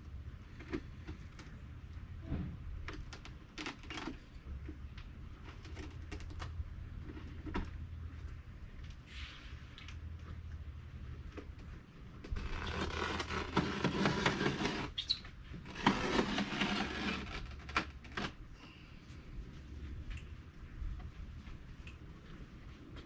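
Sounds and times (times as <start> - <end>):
scraping and rubbing on wood: 12.3 - 18.4.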